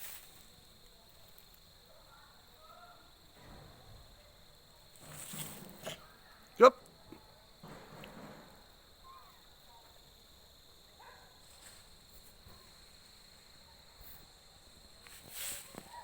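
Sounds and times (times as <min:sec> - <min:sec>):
high-pitched insect trill: 0:00.0 - 0:03.3.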